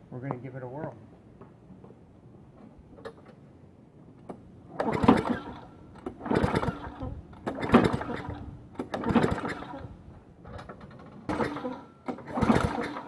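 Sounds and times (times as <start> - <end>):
lawnmower engine cranking: 4.3 - 13.0.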